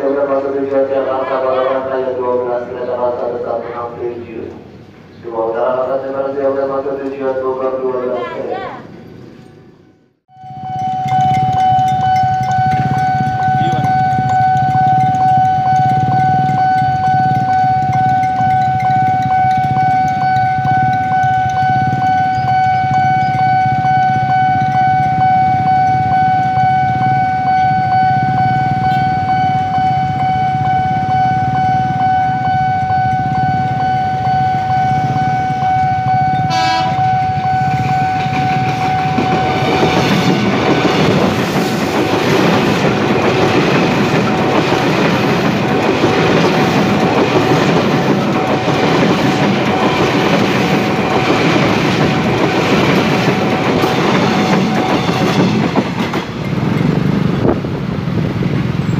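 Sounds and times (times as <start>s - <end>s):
train rumble and wheel clatter: 0.0s - 58.9s
level crossing warning tone: 10.3s - 57.3s
train horn toot: 33.9s - 40.5s.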